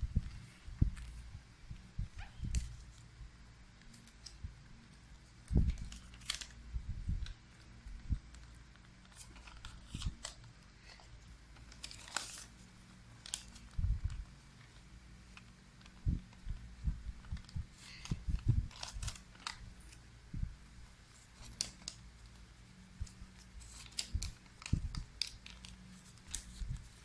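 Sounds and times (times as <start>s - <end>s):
paper rustling and crinkling: 5.7s - 6.6s, 8.4s - 20.1s, 21.0s - 27.0s.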